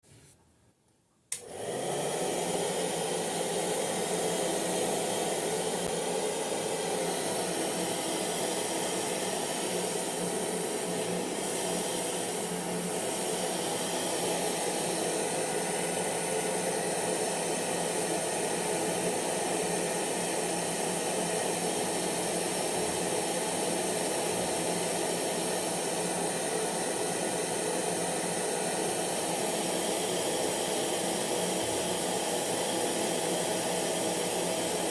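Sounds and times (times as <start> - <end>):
hair dryer switch click: 1.3 - 1.6
hair dryer running: 1.3 - 34.9.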